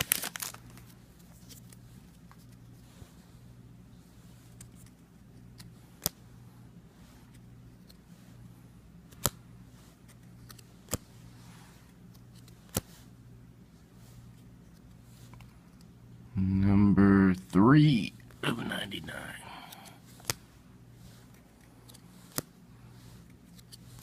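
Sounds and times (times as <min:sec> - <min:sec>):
low steady hum: 0:00.0 - 0:24.0
trading cards clicking: 0:21.8 - 0:22.5.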